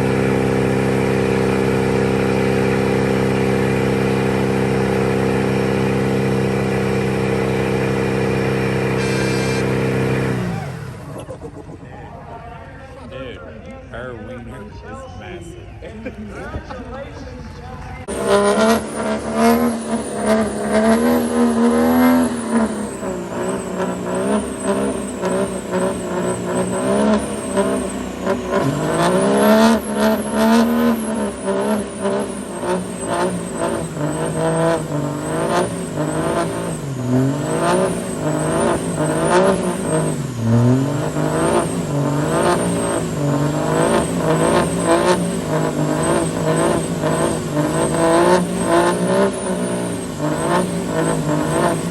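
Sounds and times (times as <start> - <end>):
truck engine revving: 0.0 - 14.7, 16.4 - 51.9.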